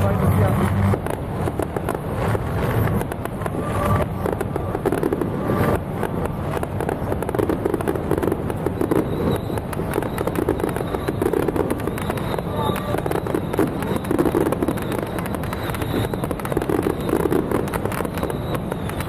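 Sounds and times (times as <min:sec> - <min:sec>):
fireworks popping and banging: 0:00.0 - 0:19.0.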